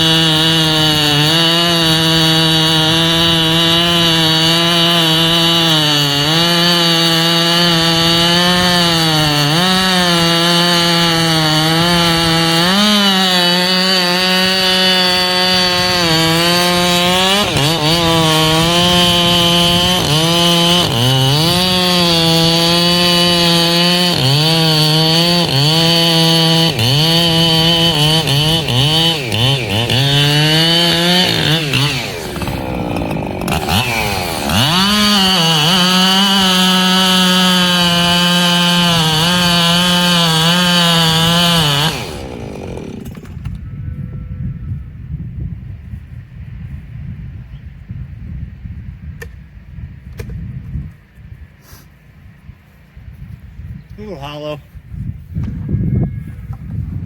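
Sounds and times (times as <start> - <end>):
chainsaw cutting wood: 0.0 - 43.6.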